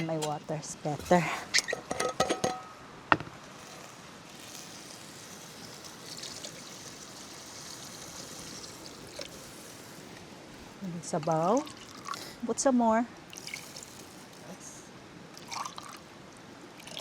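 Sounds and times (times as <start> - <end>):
stream water trickling: 3.4 - 17.0.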